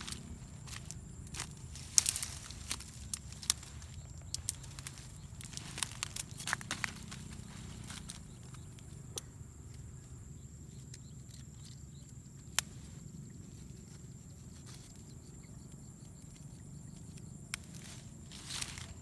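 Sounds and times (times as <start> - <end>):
steady low rumble: 0.0 - 14.5
faint ticks: 0.7 - 9.9.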